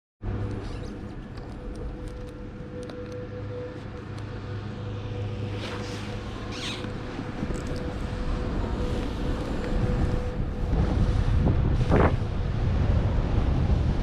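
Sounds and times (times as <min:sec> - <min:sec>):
wind rumble on microphone: 0:00.2 - 0:14.0
snow scraping underfoot: 0:05.0 - 0:10.7.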